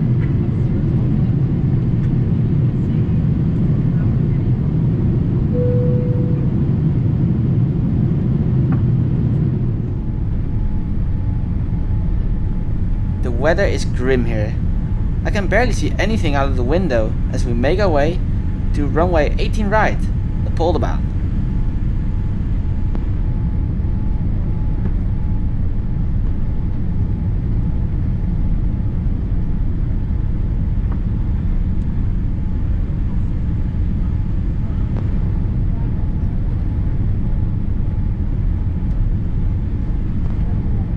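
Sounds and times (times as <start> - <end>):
steady tone: 5.6 - 7.0, 12.5 - 22.6
aircraft cabin engine rumble: 12.5 - 22.6.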